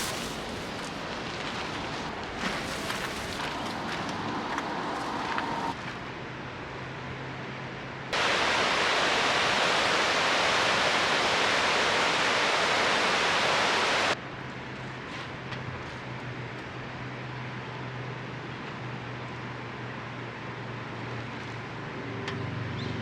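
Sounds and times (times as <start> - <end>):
steady rushing hiss: 0.0 - 5.8, 8.2 - 14.2.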